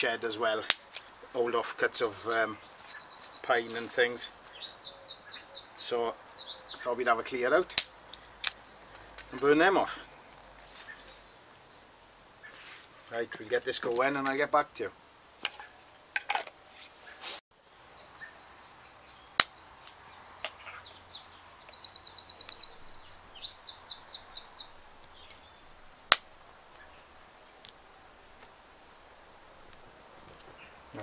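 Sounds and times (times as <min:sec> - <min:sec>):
songbird singing: 0:00.0 - 0:15.9, 0:17.0 - 0:31.0
sharp cracks: 0:00.6 - 0:01.2, 0:07.7 - 0:09.4, 0:19.4 - 0:20.6, 0:26.0 - 0:26.9.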